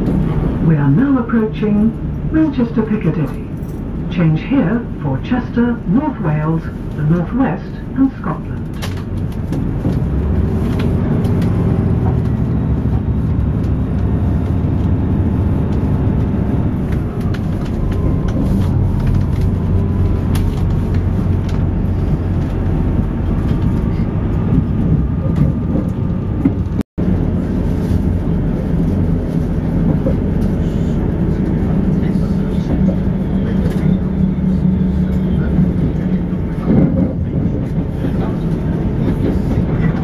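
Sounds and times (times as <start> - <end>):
train rumble inside carriage: 0.0 - 40.0.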